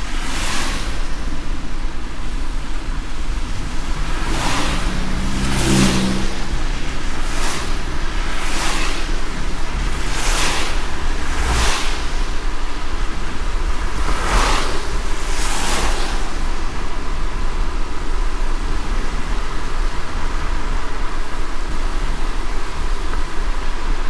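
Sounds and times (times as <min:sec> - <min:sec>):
low road rumble: 0:00.0 - 0:24.0
rain hiss: 0:00.0 - 0:24.0.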